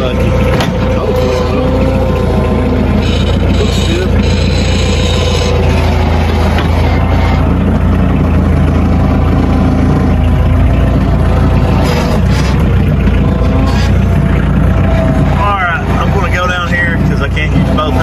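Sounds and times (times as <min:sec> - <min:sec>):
high-pitched whine: 0:00.0 - 0:07.6
sawmill engine running: 0:00.0 - 0:18.0.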